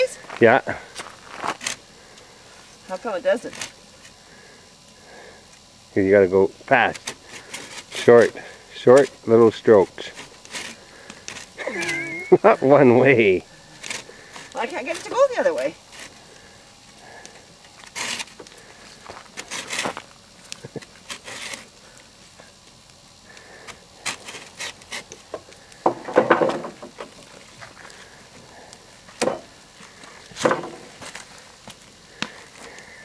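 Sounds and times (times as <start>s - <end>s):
hand saw cutting log: 17.9s - 18.4s.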